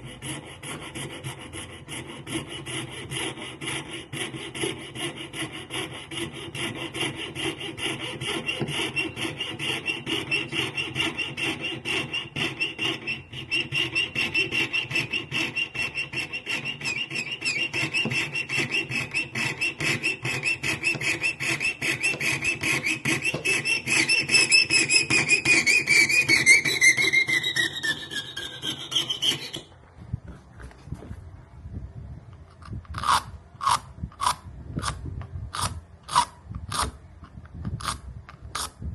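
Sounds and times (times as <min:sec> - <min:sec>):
ringing squeal: 0:22.4 - 0:29.7.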